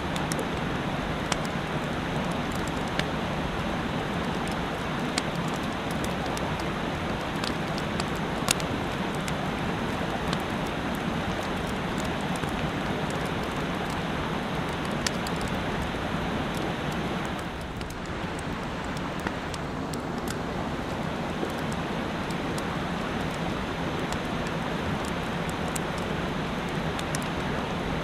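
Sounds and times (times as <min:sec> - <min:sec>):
campfire crackling and popping: 0:00.0 - 0:28.0
mountain stream rushing: 0:00.0 - 0:28.0.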